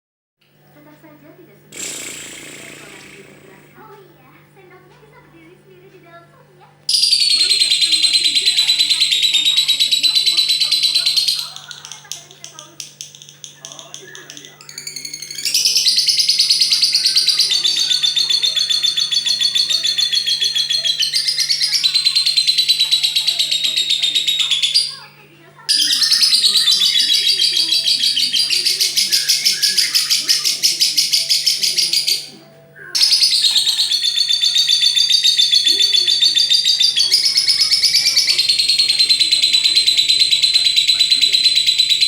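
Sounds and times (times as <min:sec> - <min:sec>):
bird shrill chatter: 0:06.9 - 0:12.2, 0:14.4 - 0:25.1, 0:25.7 - 0:32.4, 0:33.0 - 0:42.0.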